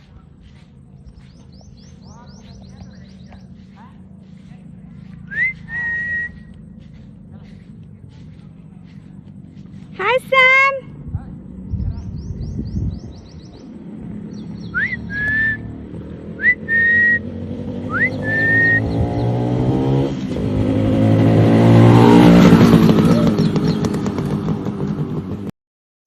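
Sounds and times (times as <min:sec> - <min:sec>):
motorcycle engine revving: 0:00.0 - 0:25.5
sliding whistles: 0:05.3 - 0:06.5, 0:14.8 - 0:15.7, 0:16.4 - 0:17.3, 0:17.9 - 0:19.0.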